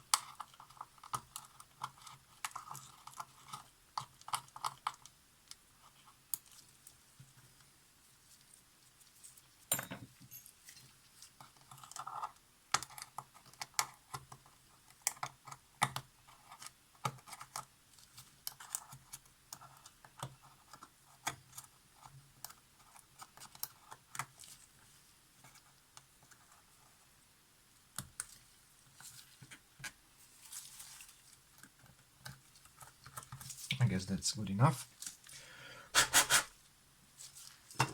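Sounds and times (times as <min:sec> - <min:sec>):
hand tool scraping: 0:35.9 - 0:36.5.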